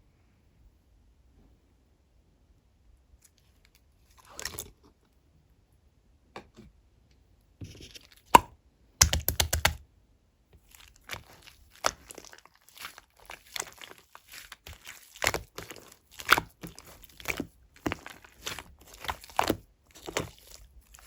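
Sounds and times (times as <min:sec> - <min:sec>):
slime clicking and popping: 0:08.3 - 0:09.8.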